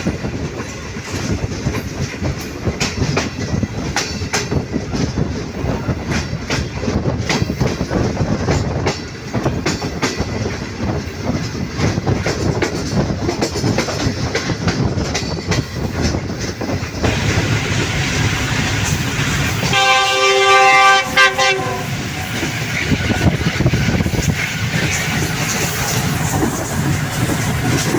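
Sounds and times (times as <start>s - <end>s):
train wheels clicking over rail joints: 0.0s - 27.9s
train horn: 17.8s - 22.7s.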